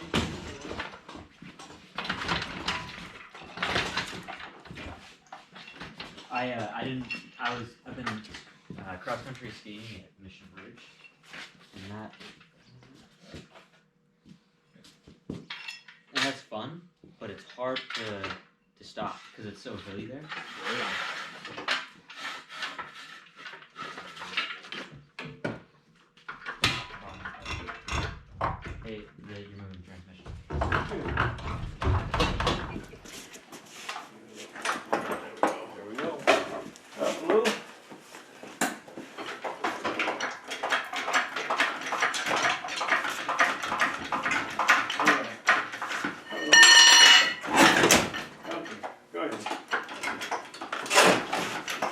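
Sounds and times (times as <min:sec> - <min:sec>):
metal clinking and rattling: 0:00.0 - 0:06.2, 0:26.3 - 0:28.8, 0:38.0 - 0:51.9
scraping and rubbing: 0:19.1 - 0:24.9, 0:32.7 - 0:47.7.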